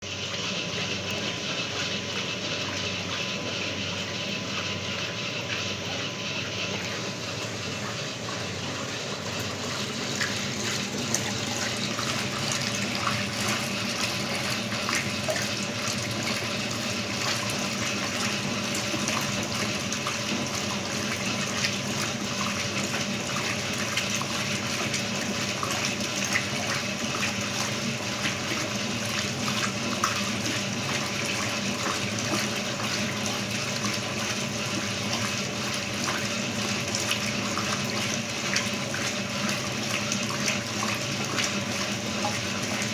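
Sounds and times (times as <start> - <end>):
water running into washing machine: 0.0 - 42.9.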